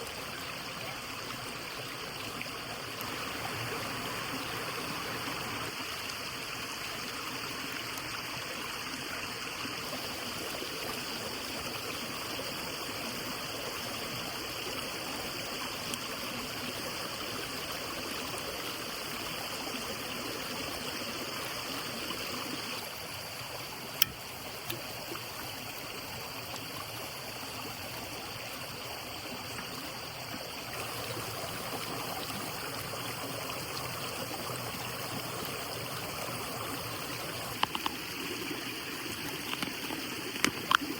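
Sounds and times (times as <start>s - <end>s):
flowing water rushing: 0.0s - 40.9s
sharp click: 24.0s - 24.9s.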